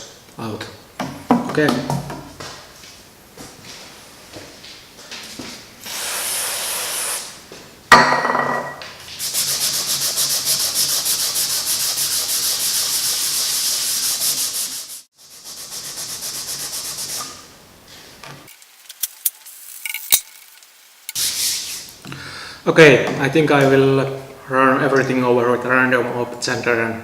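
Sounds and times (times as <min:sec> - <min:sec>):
short hiss: 0:05.8 - 0:07.4.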